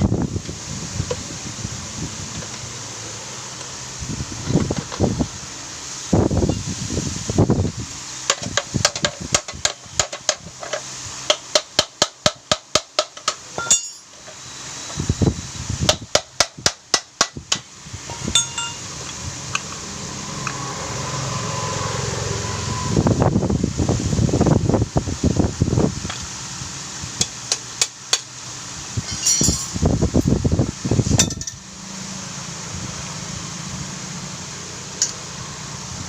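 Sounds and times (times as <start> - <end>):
heavy clunks of metal parts: 13.0 - 14.3, 18.1 - 18.9, 29.0 - 29.8.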